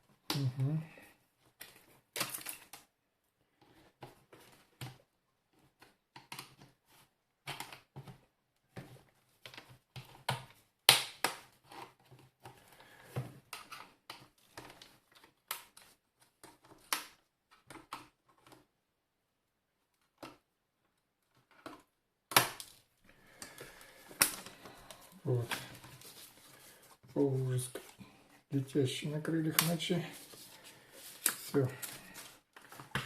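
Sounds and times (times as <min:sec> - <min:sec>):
plastic snapping: 0:09.4 - 0:11.5, 0:21.5 - 0:22.8, 0:23.4 - 0:24.7.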